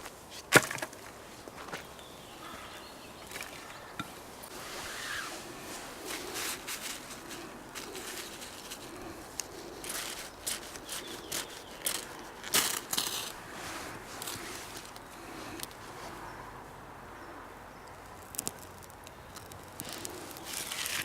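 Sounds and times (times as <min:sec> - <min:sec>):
dry twigs crunching and snapping: 0:05.9 - 0:15.8, 0:17.9 - 0:21.0.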